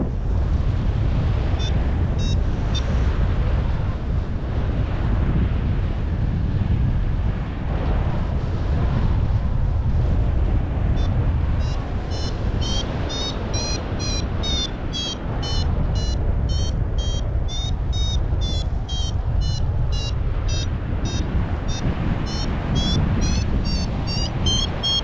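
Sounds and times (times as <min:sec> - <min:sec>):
wind buffeting microphone: 0:00.0 - 0:25.0
variometer beeping high pips: 0:01.6 - 0:02.9, 0:11.0 - 0:25.0.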